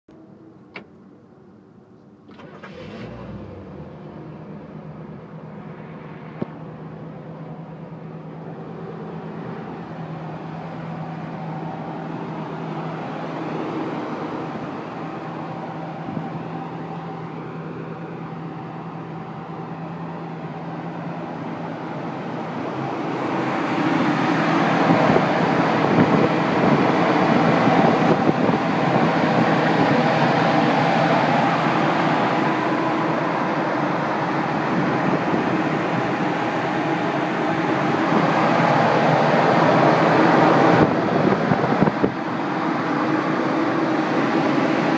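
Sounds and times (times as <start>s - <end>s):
car engine starting and idling: 0.1s - 44.9s.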